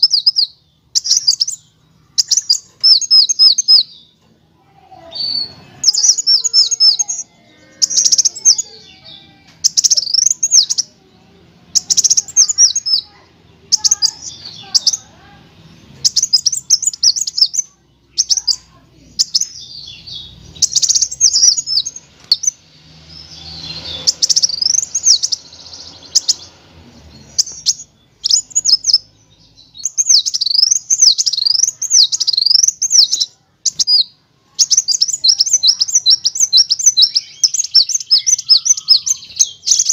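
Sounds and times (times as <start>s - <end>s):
bird singing high trills: 0.0s - 4.2s, 5.0s - 39.9s.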